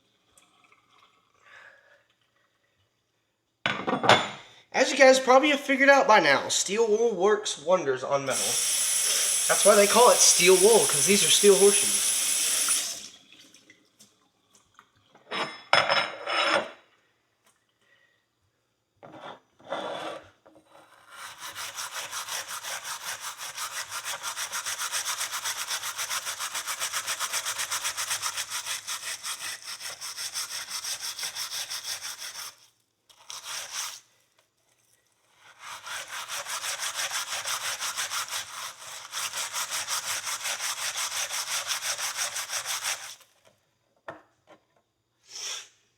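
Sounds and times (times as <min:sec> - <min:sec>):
steel wool scrubbing metal: 0:08.3 - 0:13.1, 0:35.5 - 0:43.1.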